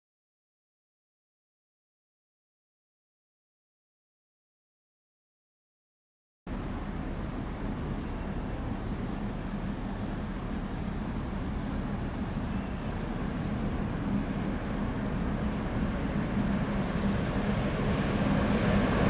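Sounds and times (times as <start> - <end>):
train low hum: 6.5 - 19.0.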